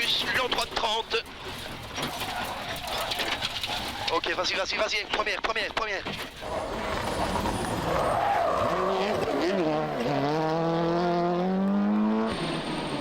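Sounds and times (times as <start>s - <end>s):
tyres spinning: 0.0s - 5.0s
rally car engine accelerating: 6.4s - 13.0s.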